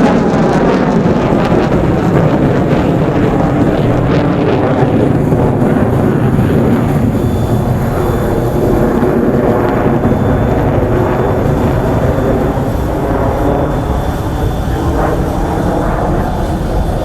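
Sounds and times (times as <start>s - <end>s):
fighter jet engines rumbling: 0.0s - 17.0s.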